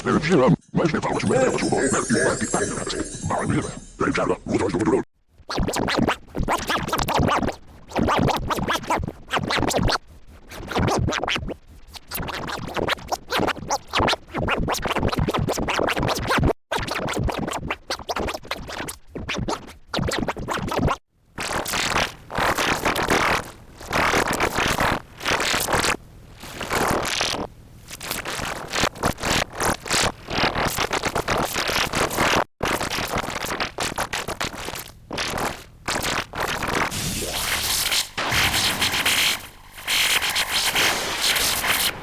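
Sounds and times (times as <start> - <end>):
stuttering glitchy music and voice: 0.0 - 8.6.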